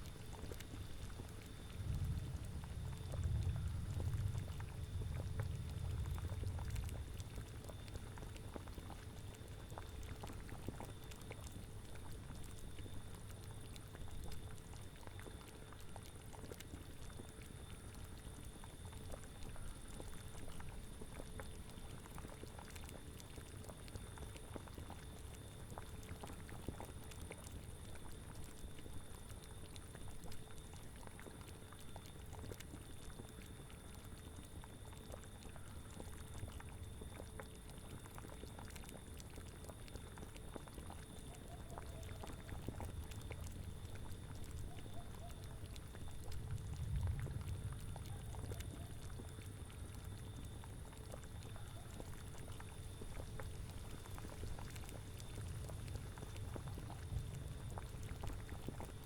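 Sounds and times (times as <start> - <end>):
cauldron bubbling: 0.2 - 59.0
low wind rumble: 1.6 - 8.3, 45.9 - 49.3, 55.3 - 58.8.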